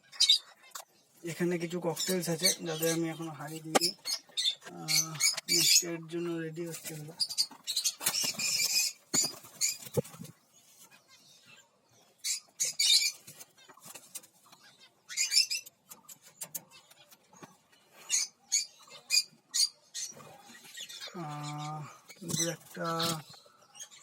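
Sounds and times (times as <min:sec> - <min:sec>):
parrots chirping shrilly: 0:07.2 - 0:10.0, 0:12.2 - 0:13.3, 0:14.6 - 0:15.7, 0:18.1 - 0:21.2.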